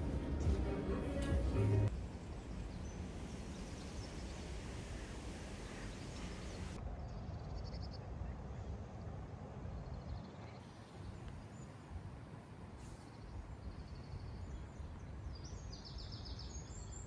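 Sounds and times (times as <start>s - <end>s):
low ambient noise: 0.0s - 12.7s.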